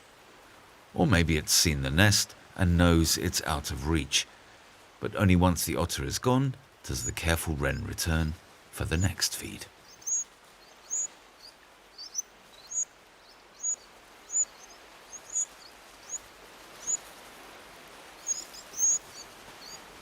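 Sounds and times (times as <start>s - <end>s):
faint steady hiss: 0.0s - 20.0s
wren chirping: 9.8s - 17.1s, 18.2s - 19.8s.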